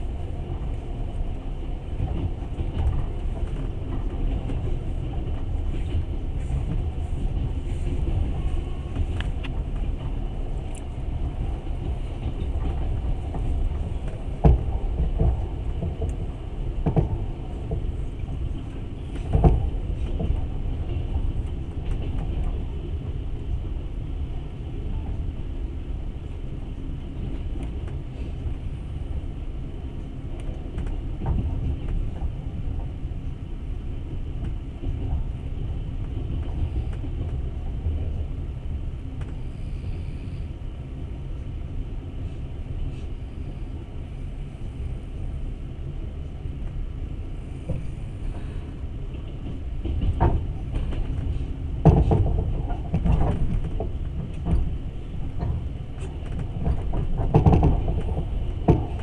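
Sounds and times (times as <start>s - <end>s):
train running on rails: 0.0s - 59.0s
knocks and clatter: 49.4s - 59.0s.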